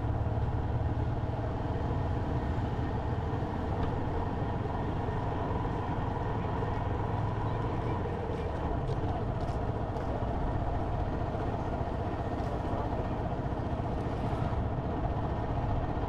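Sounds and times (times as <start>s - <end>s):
road noise: 0.0s - 16.0s.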